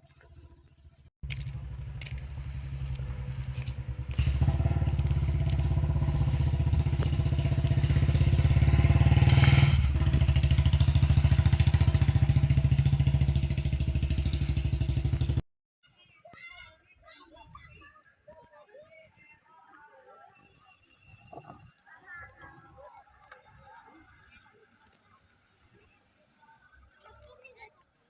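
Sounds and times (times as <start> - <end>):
vehicle engine running under load: 0.1 - 15.4.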